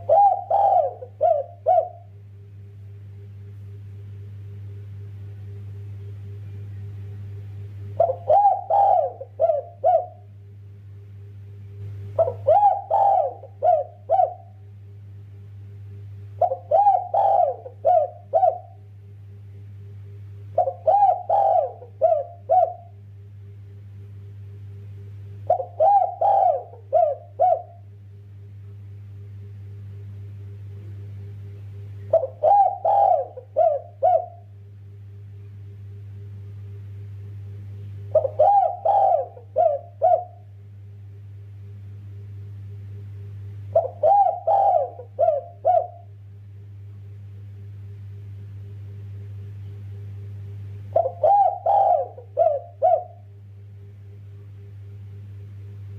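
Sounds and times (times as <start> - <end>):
dove cooing: 0.0 - 2.2, 8.0 - 10.3, 12.1 - 14.6, 16.4 - 18.9, 20.5 - 23.0, 25.4 - 27.9, 32.0 - 34.5, 38.1 - 40.6, 43.7 - 46.2, 50.9 - 53.3
steady low hum: 0.0 - 55.9.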